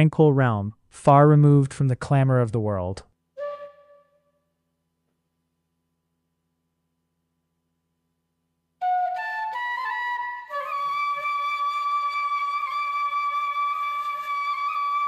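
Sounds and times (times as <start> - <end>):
flute melody: 3.4 - 4.4, 8.8 - 15.0.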